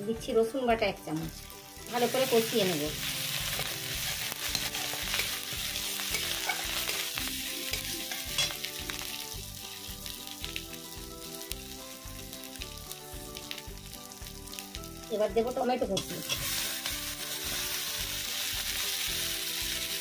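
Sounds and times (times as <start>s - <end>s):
food sizzling in hot oil: 1.0s - 20.0s
metal spatula scraping a pan: 3.1s - 8.7s, 16.0s - 17.6s.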